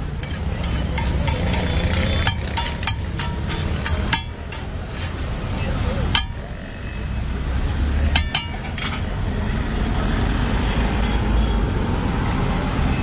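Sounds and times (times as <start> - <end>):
road traffic rumble: 0.0 - 13.0
ringing metal clinks: 8.2 - 9.0.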